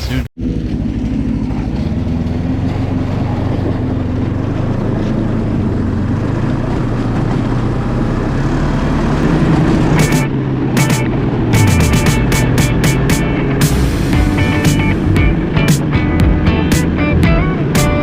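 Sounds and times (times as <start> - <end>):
snowmobile engine running: 0.0 - 18.0.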